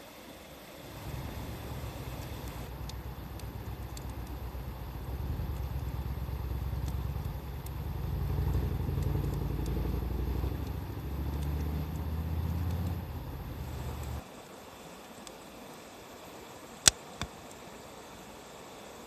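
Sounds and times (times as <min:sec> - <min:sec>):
campfire crackles: 0:00.1 - 0:18.8
motor vehicle engine rumble: 0:00.8 - 0:14.2.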